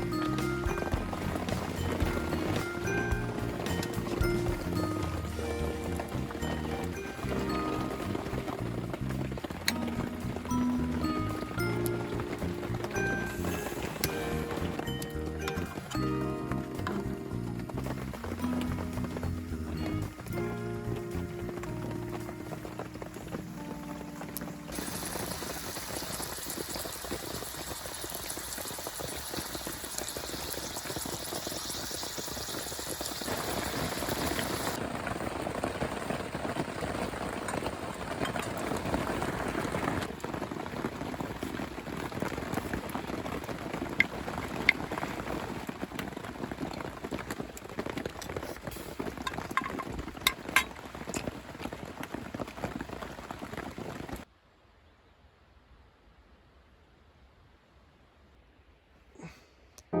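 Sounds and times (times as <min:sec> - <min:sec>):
stew bubbling in a pot: 0:24.7 - 0:35.0.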